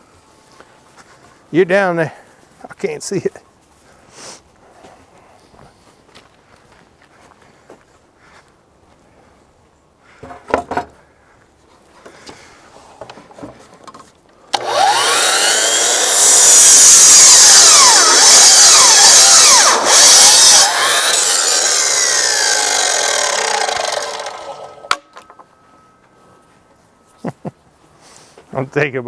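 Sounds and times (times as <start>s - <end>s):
power saw cutting wood: 14.6s - 25.1s.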